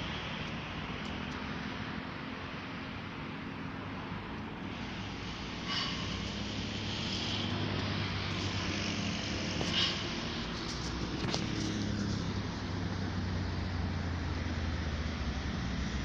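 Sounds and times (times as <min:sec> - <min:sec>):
vehicle rumble: 0:00.0 - 0:16.0
high-pitched squeal: 0:04.7 - 0:10.8.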